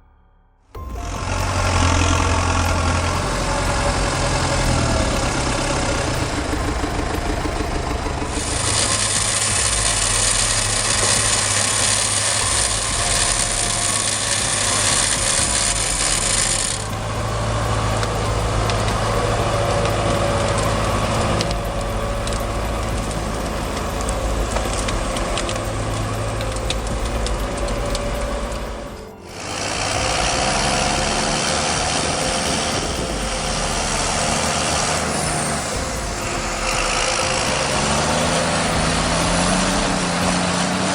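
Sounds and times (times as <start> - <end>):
heavy machinery engine drone: 0.0 - 40.9
loud hiss: 0.8 - 40.9
mechanical clattering and creaking: 0.8 - 40.9.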